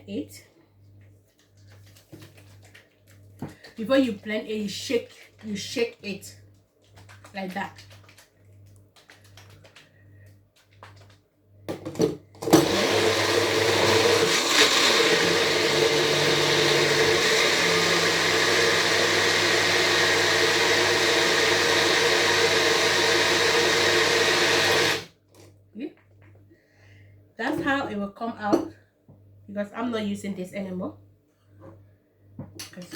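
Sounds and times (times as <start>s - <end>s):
electric blender running: 12.4s - 25.1s.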